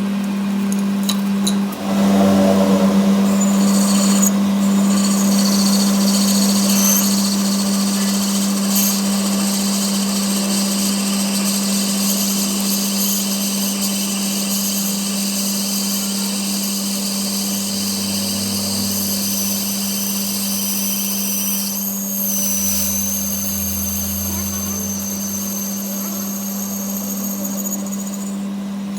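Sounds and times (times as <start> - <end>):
workshop machine humming and hissing: 0.0 - 28.9
lower drone: 1.7 - 7.0, 16.9 - 27.9.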